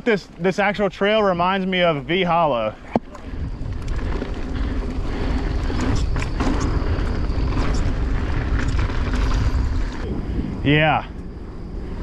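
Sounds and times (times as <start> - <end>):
bike tyres crunching on dirt: 0.0 - 12.0
bike rattling and clicking: 0.2 - 12.0
wind rushing over microphone: 2.9 - 12.0.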